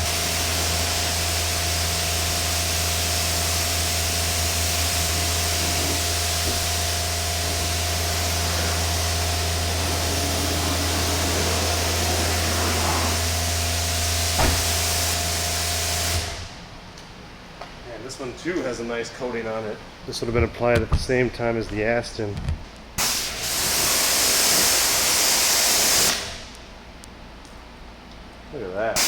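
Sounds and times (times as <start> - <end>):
water spray hissing: 0.0 - 16.2
pressure washer motor hum: 0.0 - 16.7
short knock: 14.4 - 14.8.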